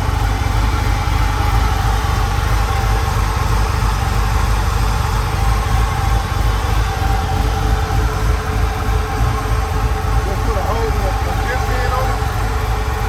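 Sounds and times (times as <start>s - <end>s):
v eight engine idling: 0.0s - 13.0s.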